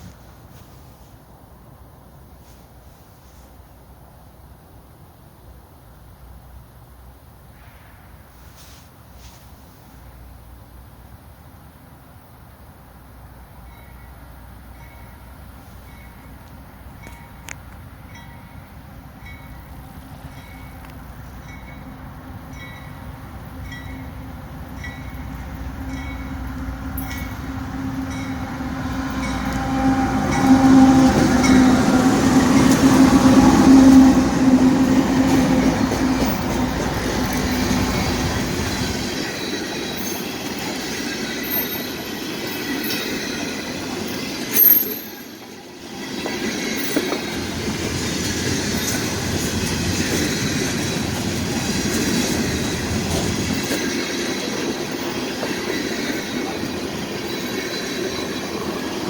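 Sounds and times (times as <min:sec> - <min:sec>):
train wheel noise: 0:13.2 - 0:59.0
locomotive drone: 0:14.3 - 0:59.0
high-pitched wheel squeals: 0:44.5 - 0:45.4.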